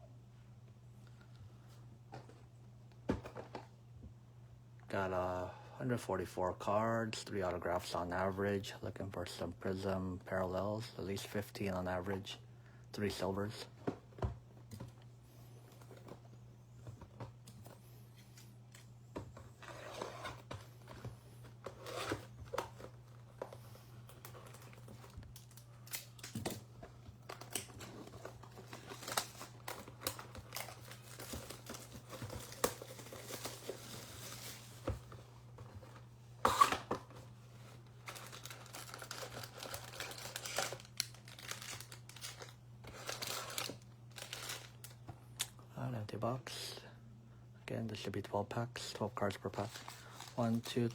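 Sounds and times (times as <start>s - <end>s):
low electrical hum: 0.0s - 50.9s
foil packs crackling: 23.6s - 35.1s, 37.8s - 45.0s, 49.4s - 50.9s
plastic wrap tearing and crinkling: 27.3s - 34.8s, 38.0s - 45.0s, 49.6s - 50.9s.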